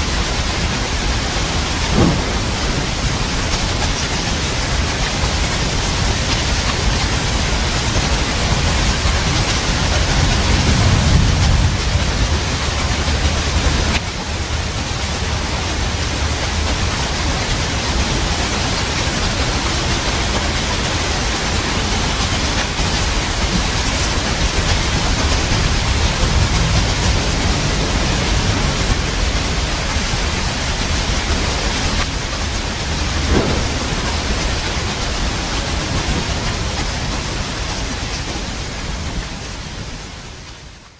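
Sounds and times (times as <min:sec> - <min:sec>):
heavy rain: 0:00.0 - 0:40.9
thunder rolling: 0:00.6 - 0:14.6, 0:17.9 - 0:39.2.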